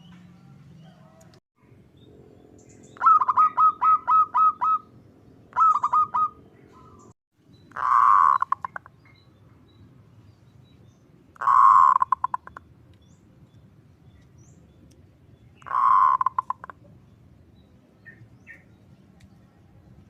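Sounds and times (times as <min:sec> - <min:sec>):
doves cooing: 0:03.0 - 0:04.9, 0:05.5 - 0:07.1, 0:07.8 - 0:08.8, 0:11.4 - 0:12.6, 0:15.6 - 0:16.8.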